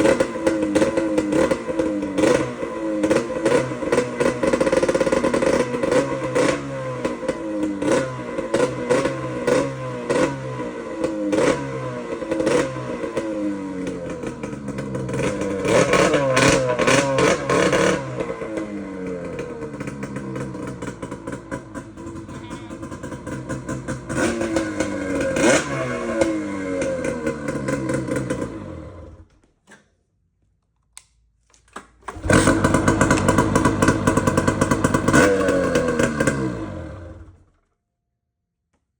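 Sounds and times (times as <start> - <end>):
snowmobile engine revving: 14.0 - 21.2, 21.9 - 29.2, 32.1 - 37.4.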